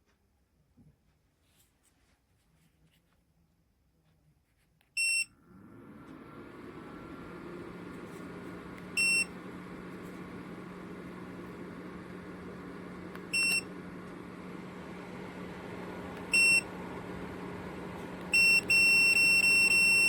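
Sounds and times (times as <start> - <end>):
space heater beeping: 5.0 - 20.0
heater fan humming: 5.3 - 20.0.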